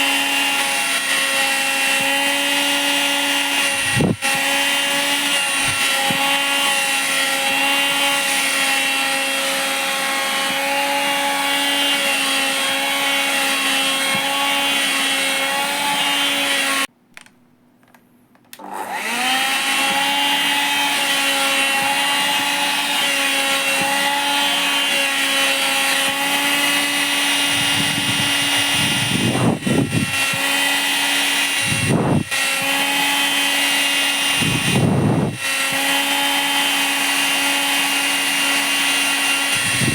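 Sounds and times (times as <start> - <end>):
vacuum cleaner motor whine: 0.0 - 16.9, 18.6 - 39.9
vacuum suction rushing: 27.4 - 30.4, 31.5 - 32.3, 34.3 - 35.4.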